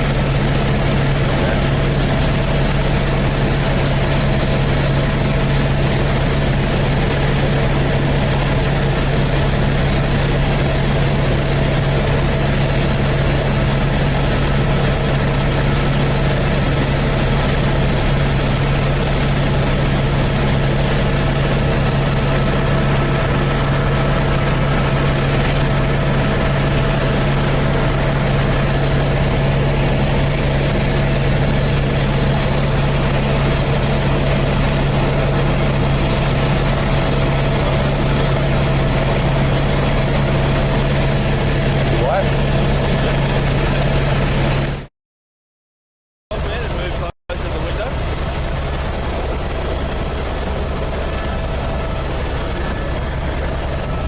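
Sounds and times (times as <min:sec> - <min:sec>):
helicopter cabin drone: 0:00.0 - 0:44.9, 0:46.3 - 0:54.0
higher whine: 0:46.3 - 0:54.0.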